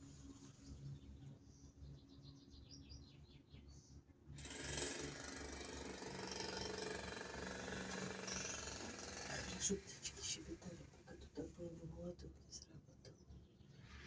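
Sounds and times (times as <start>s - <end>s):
loud jackhammer: 4.4s - 9.7s
small bird chirping: 8.2s - 8.8s.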